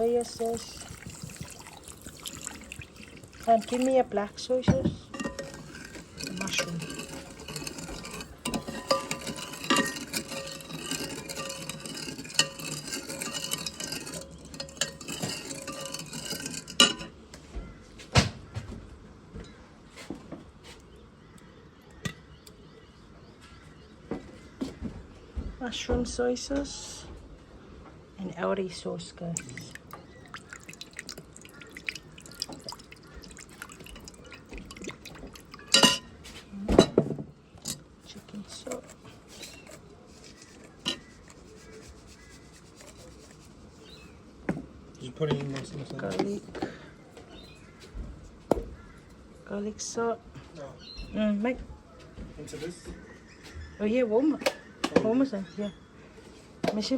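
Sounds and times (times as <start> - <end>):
utensils clinking against pans: 0.0 - 4.0, 4.6 - 17.2, 29.5 - 36.2, 36.8 - 41.3.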